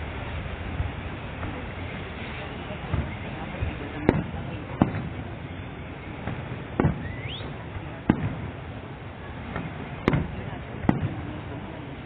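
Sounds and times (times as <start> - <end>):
faint firework pops: 2.8 - 3.2, 4.0 - 5.2, 6.2 - 8.6, 9.5 - 11.4
firework bangs: 2.8 - 11.7
rising firework whistle: 6.2 - 8.3.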